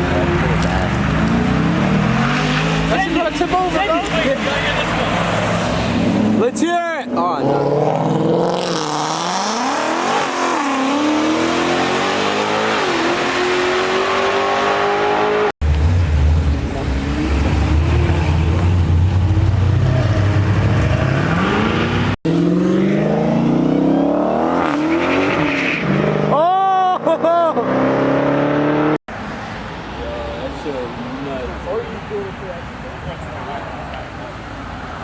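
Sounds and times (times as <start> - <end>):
car engines revving past: 0.0 - 26.4, 27.6 - 35.0.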